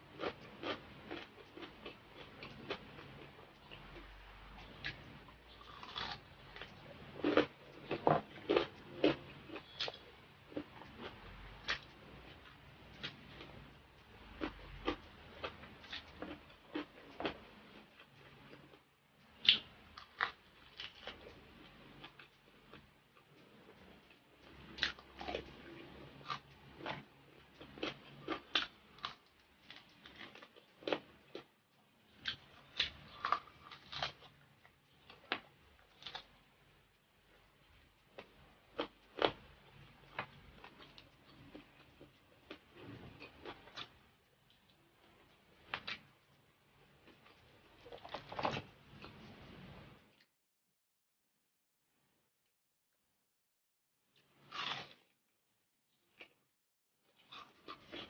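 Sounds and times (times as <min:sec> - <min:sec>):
crunching crispy food: 0:00.1 - 0:04.0, 0:04.8 - 0:22.8, 0:23.5 - 0:36.8, 0:38.0 - 0:46.1, 0:54.2 - 0:55.1.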